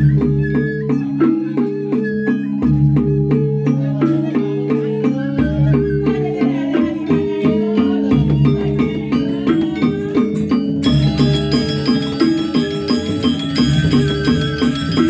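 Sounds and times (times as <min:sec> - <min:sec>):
metallophone strikes: 0:06.9 - 0:15.0.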